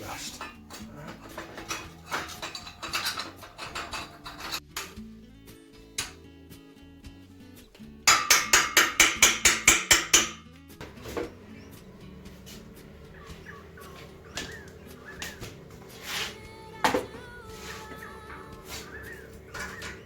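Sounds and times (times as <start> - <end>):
background music: 0.0 - 20.0
metal-on-metal strikes: 8.0 - 10.4.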